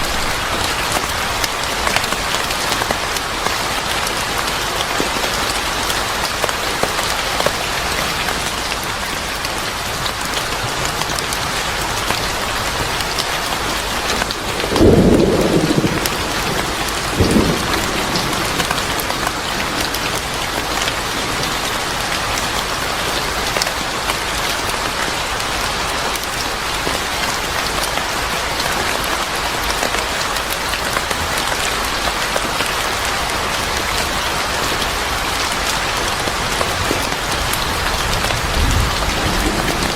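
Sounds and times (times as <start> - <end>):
steady rain falling: 0.0 - 39.9
thunder clap: 14.3 - 21.9, 37.4 - 39.9
thunder rumble: 14.4 - 21.9, 37.4 - 39.9.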